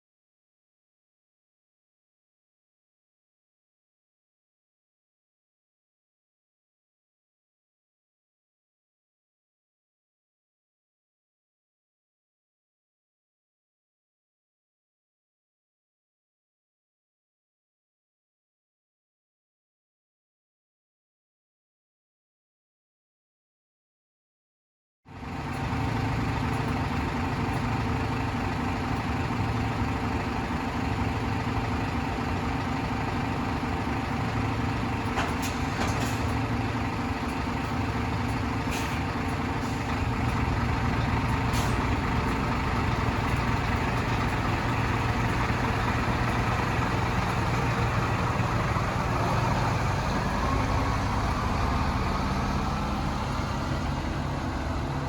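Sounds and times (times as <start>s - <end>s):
bus engine running: 25.1s - 55.0s.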